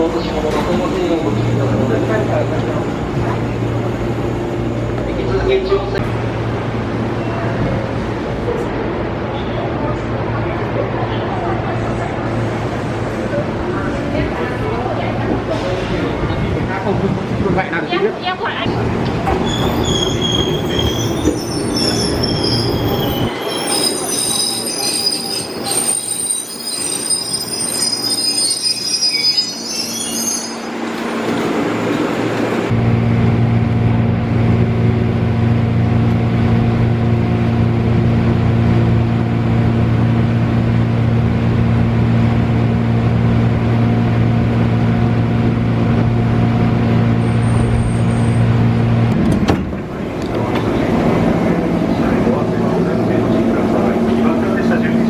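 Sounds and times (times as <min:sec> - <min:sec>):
train low hum: 0:00.0 - 0:55.0
train wheels squealing on rails: 0:19.3 - 0:31.6, 0:47.2 - 0:48.7.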